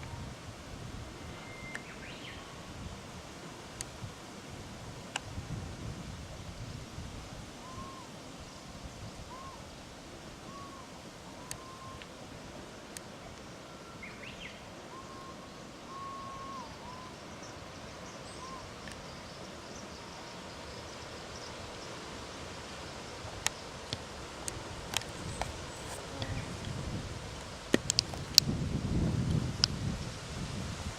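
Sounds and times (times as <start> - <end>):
steady outdoor hiss: 0.0 - 30.9
distant bird whistling: 1.2 - 2.6, 7.6 - 8.1, 9.3 - 9.6, 10.5 - 12.1, 13.7 - 17.4
sharp clicks: 27.7 - 28.5.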